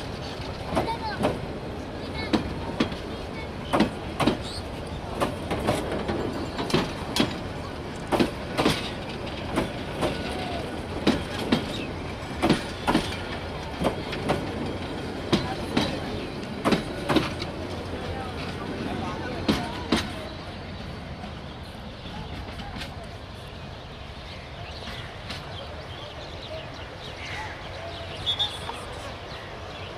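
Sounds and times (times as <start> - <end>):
wheels clicking over rail joints: 0.0 - 20.4
train coaches rumbling past: 0.0 - 29.9.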